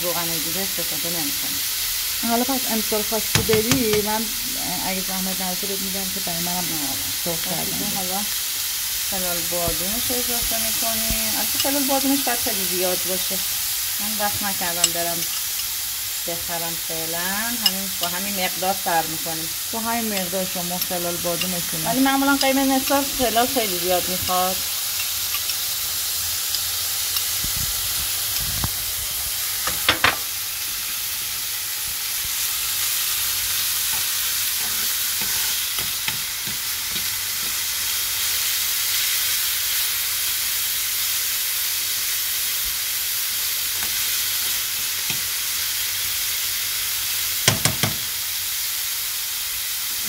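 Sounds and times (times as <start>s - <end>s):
almonds sizzling in hot oil: 0.0s - 50.0s
metal spoon knocking a pan: 3.3s - 4.1s, 29.7s - 30.3s, 47.4s - 48.1s.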